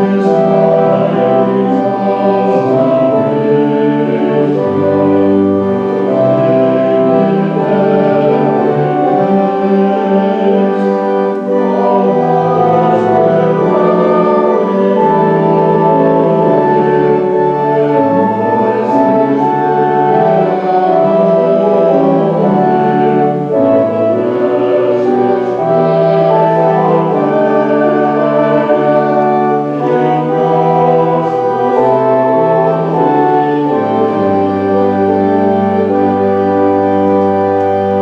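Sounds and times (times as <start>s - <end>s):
church organ chords: 0.0s - 38.0s.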